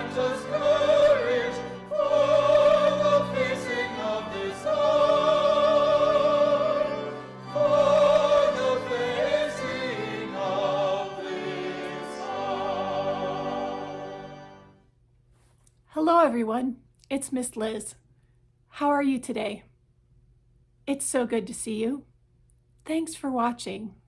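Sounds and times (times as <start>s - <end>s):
classical singing with vibrato: 0.0s - 14.6s.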